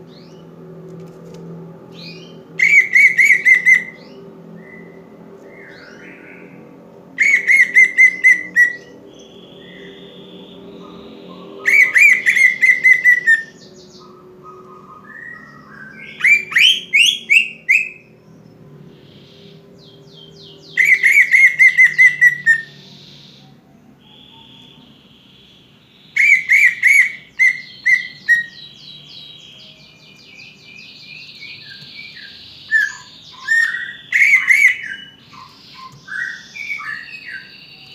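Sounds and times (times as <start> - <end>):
bird song of quick repeated notes: 1.9 - 37.9
soft bird whistles: 7.2 - 18.1, 20.7 - 28.6.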